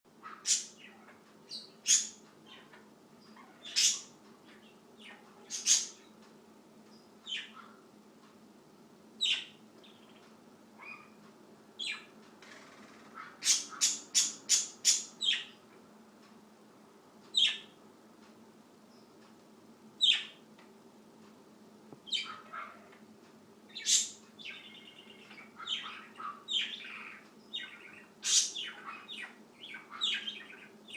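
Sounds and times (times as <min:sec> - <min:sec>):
bird chirping: 0:00.2 - 0:06.2, 0:06.9 - 0:07.8, 0:09.2 - 0:11.2, 0:11.8 - 0:12.2, 0:13.2 - 0:15.6, 0:17.3 - 0:17.8, 0:20.0 - 0:20.4, 0:22.0 - 0:22.8, 0:23.7 - 0:30.9.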